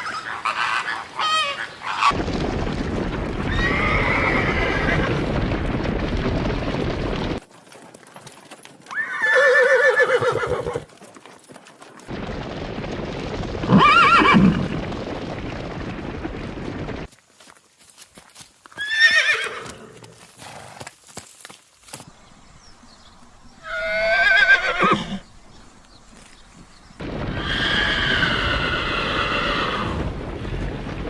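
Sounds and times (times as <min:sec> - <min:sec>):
horses neighing: 0:00.0 - 0:02.2, 0:03.5 - 0:05.3, 0:08.9 - 0:11.0, 0:13.6 - 0:14.8, 0:18.7 - 0:20.9, 0:23.6 - 0:25.3, 0:27.3 - 0:30.1.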